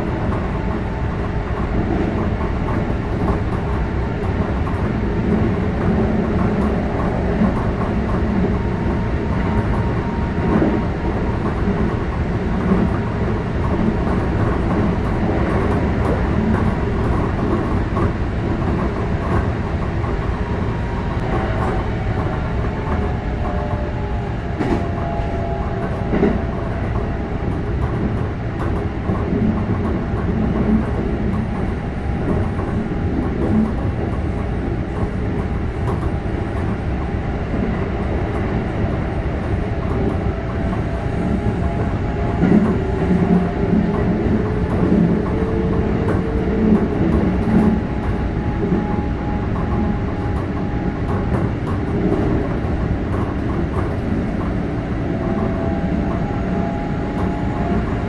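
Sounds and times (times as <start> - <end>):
rail-joint clickety-clack: 0.0 - 58.0
train wheels rumbling on track: 0.0 - 58.0.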